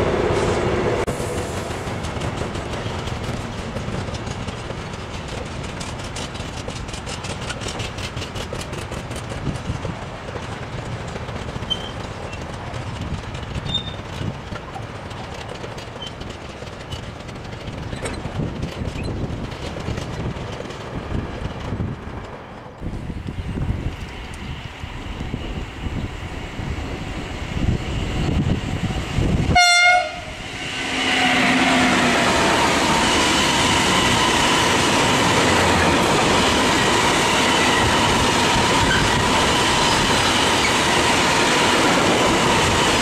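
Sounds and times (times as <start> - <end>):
wind noise: 0.0 - 10.2, 17.5 - 43.0
freight train rolling past: 0.0 - 43.0
wheel clicks over rail joints: 2.0 - 22.6.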